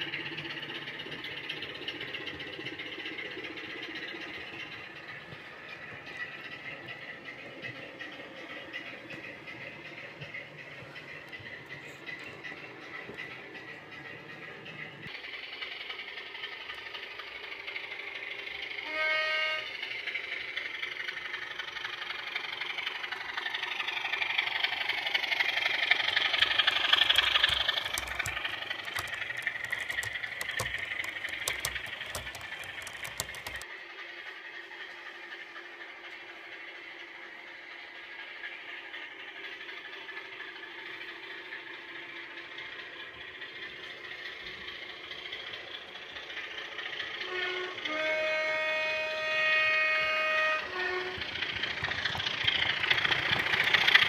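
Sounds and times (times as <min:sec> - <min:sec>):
diesel engine sound through small speaker: 0:00.0 - 0:54.0
sharp clicks: 0:26.3 - 0:33.6.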